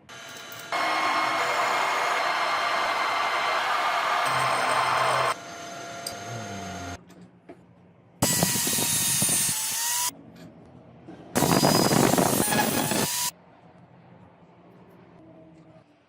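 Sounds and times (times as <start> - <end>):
power tools grinding metal: 0.1 - 7.0, 8.2 - 10.1, 11.4 - 13.3.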